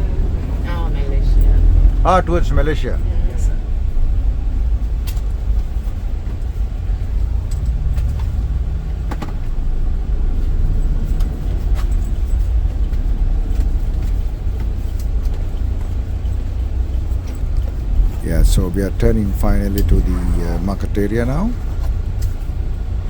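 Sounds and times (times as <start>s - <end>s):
van engine and road rumble: 0.0s - 23.0s.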